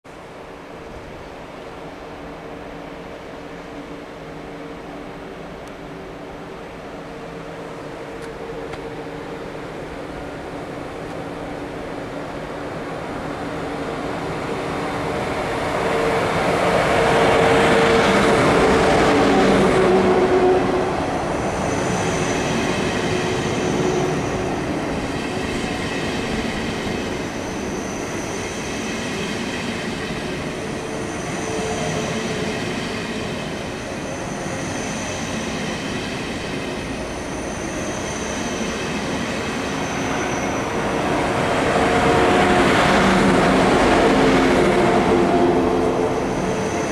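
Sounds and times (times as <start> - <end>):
train passing with rumble: 0.1 - 46.9
faint high-pitched squeals: 20.1 - 46.9.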